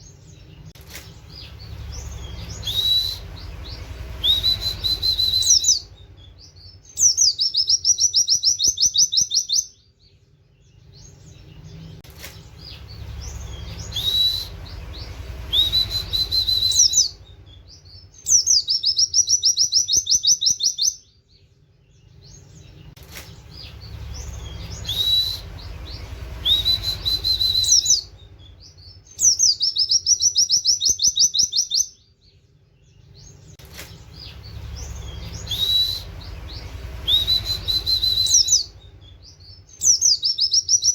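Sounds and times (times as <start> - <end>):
bird singing rapid high notes: 0.0 - 40.9
low background rumble: 0.0 - 40.9
soft bird twittering: 0.0 - 40.9.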